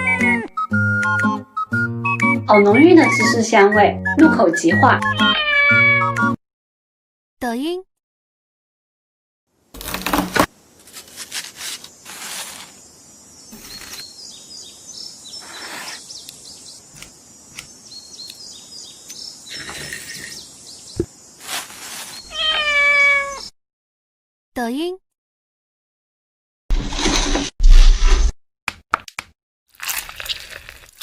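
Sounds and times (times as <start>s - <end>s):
cat meowing: 5.0s - 6.2s, 22.3s - 23.5s
handling noises: 9.8s - 12.8s, 21.0s - 22.4s
loud rustle: 9.8s - 12.8s, 21.4s - 22.3s.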